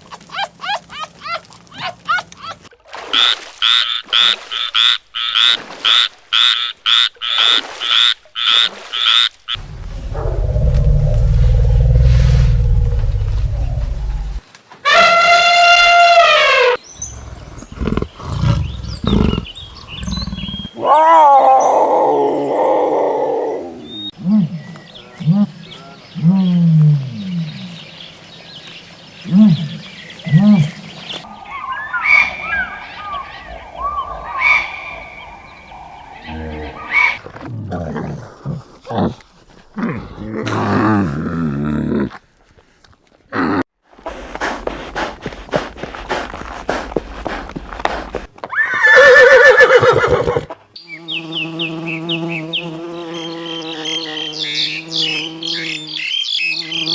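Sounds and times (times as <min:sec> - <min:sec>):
farm animals calling: 0:29.2 - 0:37.2.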